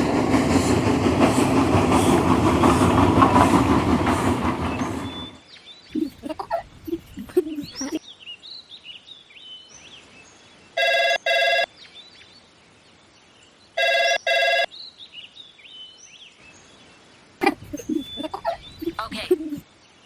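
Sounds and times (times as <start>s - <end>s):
birds chirping: 0.0s - 8.0s, 17.4s - 19.6s
phone ringing: 10.8s - 11.7s, 13.8s - 14.7s.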